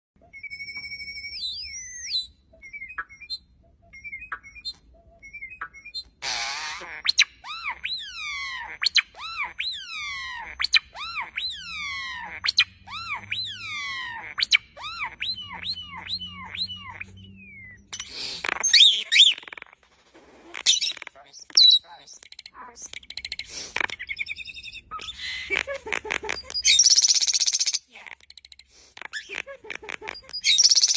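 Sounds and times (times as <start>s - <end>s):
bird whistling calls: 0.2s - 19.6s, 26.6s - 27.8s, 30.4s - 30.9s.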